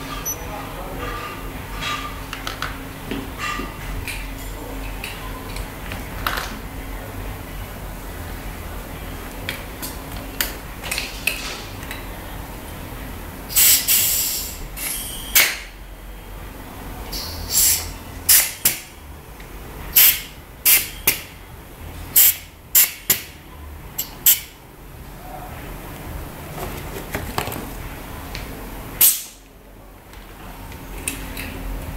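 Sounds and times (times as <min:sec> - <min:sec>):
low steady hum: 0:00.0 - 0:13.6, 0:14.5 - 0:31.9
air hissing bursts: 0:13.5 - 0:15.7, 0:17.2 - 0:18.8, 0:19.9 - 0:20.9, 0:22.2 - 0:23.1, 0:29.0 - 0:29.4.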